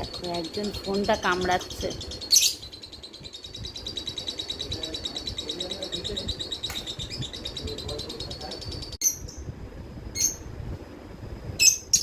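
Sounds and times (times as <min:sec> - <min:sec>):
parrots chattering: 0:00.0 - 0:09.4.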